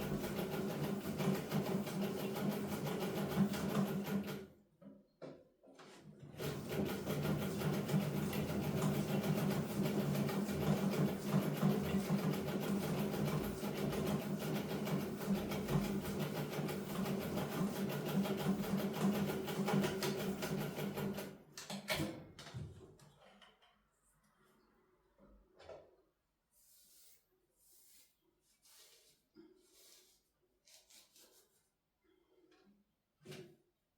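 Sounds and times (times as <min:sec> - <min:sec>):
sewing machine stitching: 0:00.0 - 0:04.5, 0:06.2 - 0:21.4.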